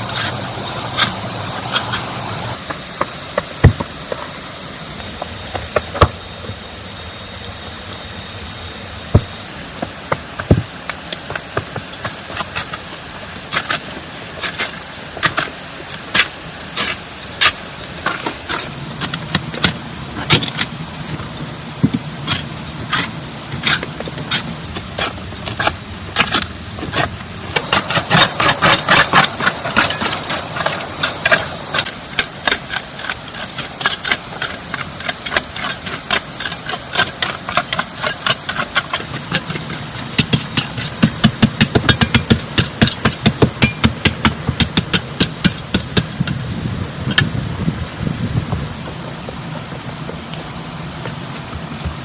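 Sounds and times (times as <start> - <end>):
steady hiss: 0.0 - 52.0
sharp taps and knocks: 1.7 - 4.4, 5.0 - 6.6, 9.1 - 12.8, 19.0 - 46.4.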